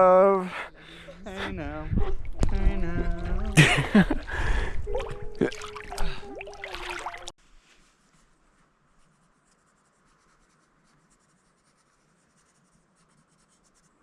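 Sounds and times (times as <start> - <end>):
water splashing: 0.8 - 7.4
pencil scratching on paper: 9.0 - 14.0.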